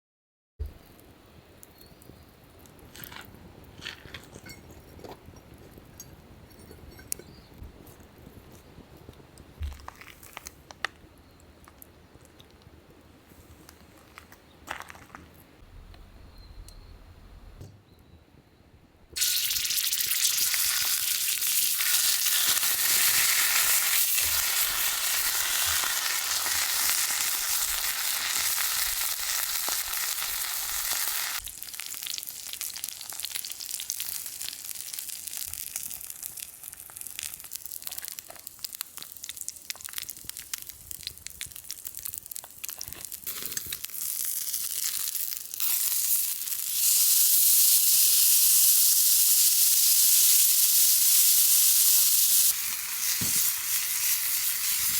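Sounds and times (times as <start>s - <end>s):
steak sizzling on griddle: 19.2s - 54.9s.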